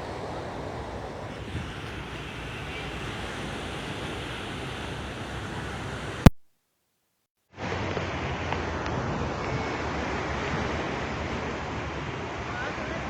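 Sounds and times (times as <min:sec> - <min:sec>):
sea surf: 0:00.0 - 0:06.3, 0:07.6 - 0:13.0
wind on microphone: 0:00.0 - 0:06.3.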